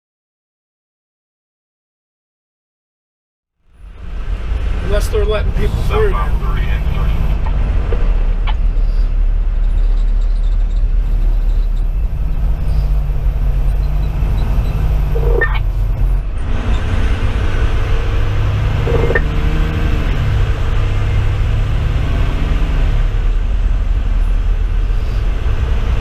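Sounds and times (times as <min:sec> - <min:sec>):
diesel engine droning: 0:03.7 - 0:26.0
short pitched sounds: 0:12.6 - 0:20.2.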